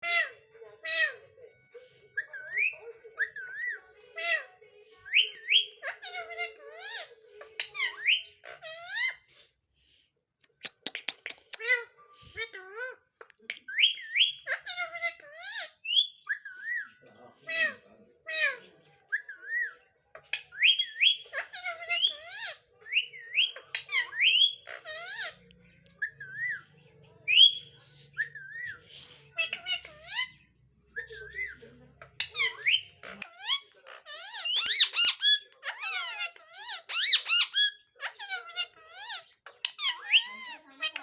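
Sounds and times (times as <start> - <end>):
parrot whistling and chattering: 2.1 - 4.5, 5.1 - 9.4, 10.6 - 41.0.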